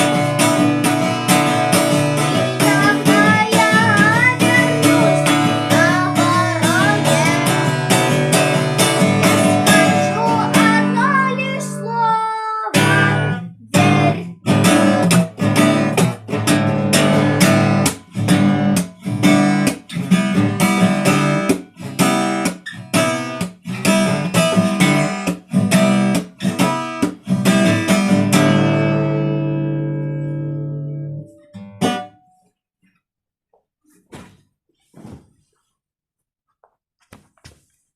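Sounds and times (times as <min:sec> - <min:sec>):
acoustic guitar strumming: 0:00.0 - 0:32.4
melodic sung line: 0:02.4 - 0:07.8.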